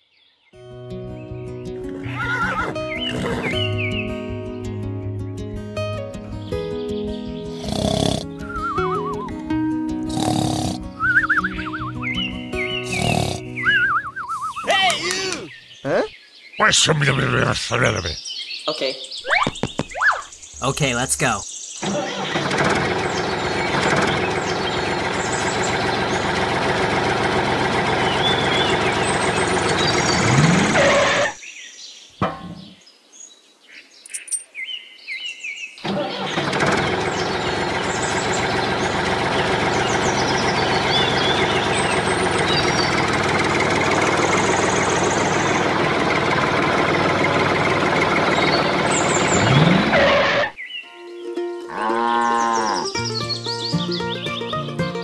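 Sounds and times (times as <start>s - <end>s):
birds chirping: 0.0s - 4.6s, 5.8s - 55.0s
tractor engine running: 21.8s - 31.3s, 35.8s - 50.5s.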